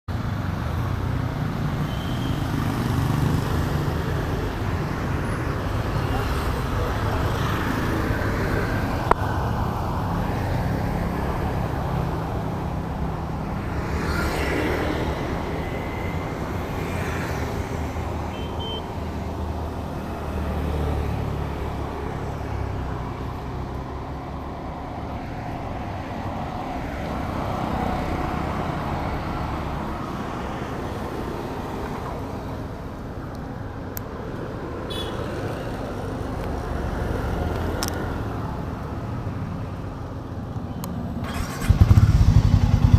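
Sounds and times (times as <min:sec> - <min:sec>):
motorcycle engine running: 0:41.3 - 0:42.9.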